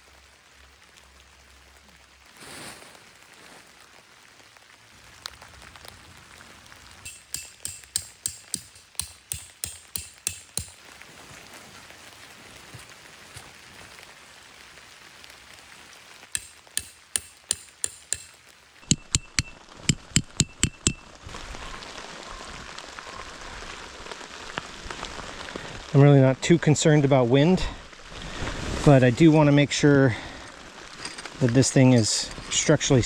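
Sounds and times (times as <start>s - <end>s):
steady rain hiss: 0.0s - 7.5s, 10.2s - 16.6s, 21.2s - 33.0s
hammer striking tent stakes: 7.1s - 10.9s, 16.4s - 21.0s.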